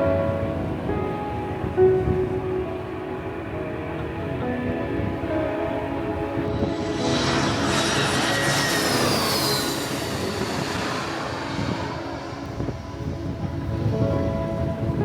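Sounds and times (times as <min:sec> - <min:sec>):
jet airliner passing overhead: 0:03.5 - 0:15.0.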